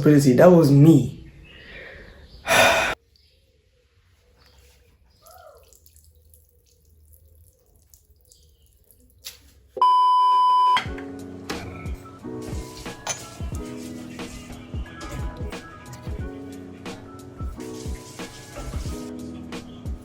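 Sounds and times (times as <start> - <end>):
electronic beep tone: 9.8 - 10.8
background music: 10.8 - 20.0.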